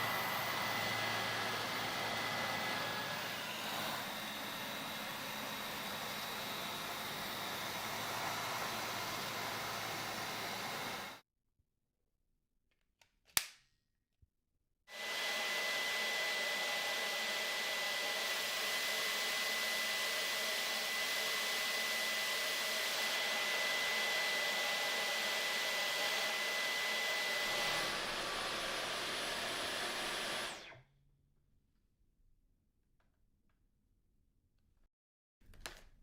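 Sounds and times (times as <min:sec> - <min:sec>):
vacuum motor whining: 0:00.0 - 0:11.2, 0:14.9 - 0:30.8.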